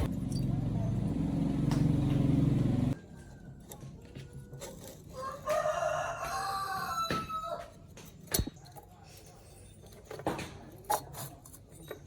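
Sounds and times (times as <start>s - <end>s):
rooster crowing: 3.2s - 7.7s.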